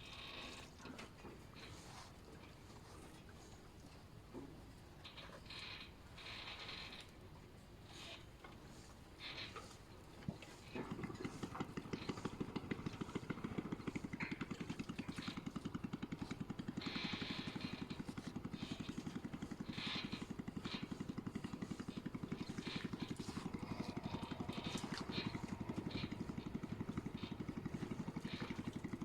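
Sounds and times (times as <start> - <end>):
small engine running: 9.2 - 29.0
clatter: 10.2 - 29.0.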